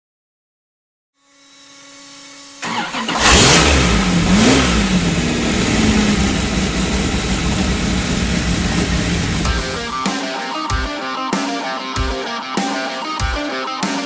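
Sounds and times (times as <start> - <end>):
engine starting and idling: 2.6 - 10.0.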